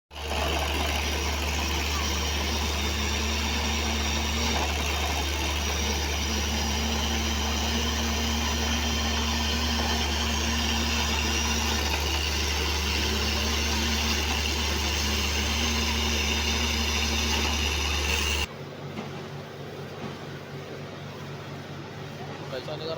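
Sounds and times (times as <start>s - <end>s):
drilling rig engine droning: 0.1s - 18.5s.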